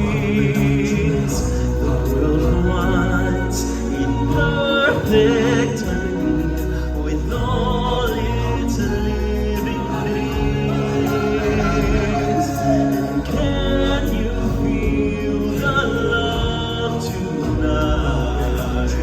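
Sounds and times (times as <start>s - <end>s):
band with steady bass: 0.0s - 19.0s
group of singers: 0.0s - 19.0s.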